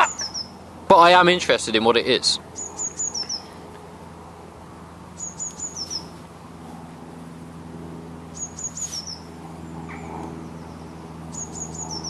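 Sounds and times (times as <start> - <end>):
bird high-pitched call: 0.0 - 0.6, 5.2 - 6.1, 8.4 - 9.3, 9.9 - 12.0.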